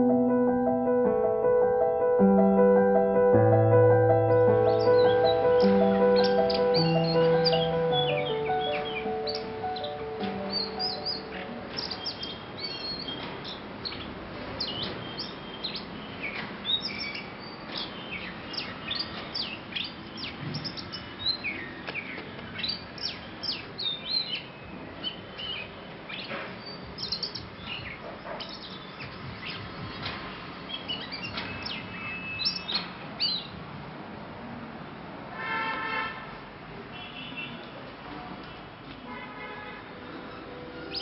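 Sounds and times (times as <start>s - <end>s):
background noise: 0.0s - 41.0s
bird singing whistles: 30.9s - 32.8s.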